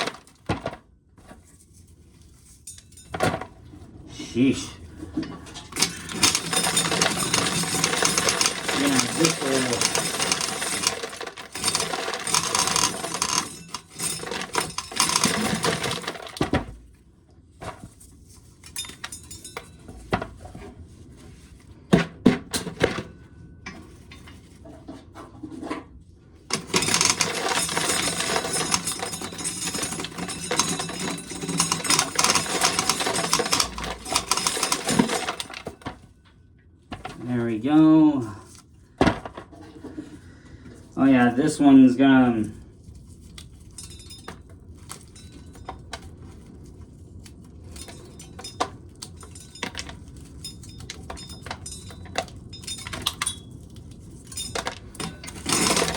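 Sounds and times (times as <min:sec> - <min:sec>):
corn kernels rattling into a pail: 0:05.8 - 0:16.8, 0:26.5 - 0:35.8, 0:54.4 - 0:55.9.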